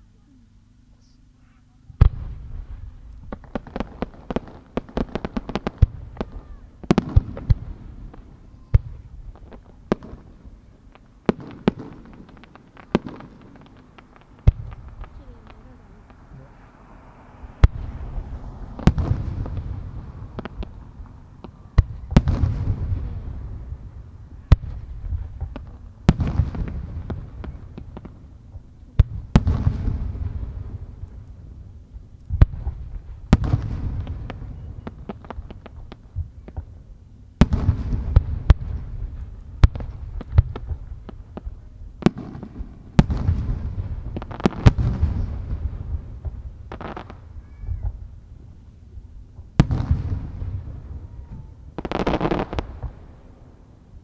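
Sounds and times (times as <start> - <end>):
low rolling echo: 0.0 - 54.0
small firework pops: 2.0 - 16.5, 18.8 - 23.2, 24.4 - 31.4, 32.1 - 48.2, 49.3 - 53.2
firework shells bursting: 10.8 - 16.4.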